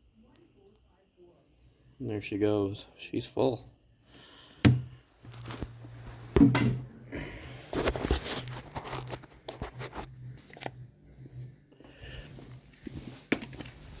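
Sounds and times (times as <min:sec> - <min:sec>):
low steady hum: 0:00.0 - 0:14.0
crinkling and rattling: 0:05.2 - 0:06.9, 0:07.6 - 0:10.8.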